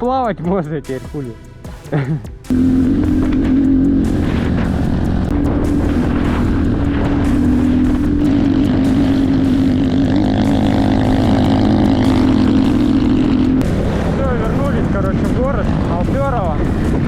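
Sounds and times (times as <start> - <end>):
motorcycle engine running: 2.5 - 17.0.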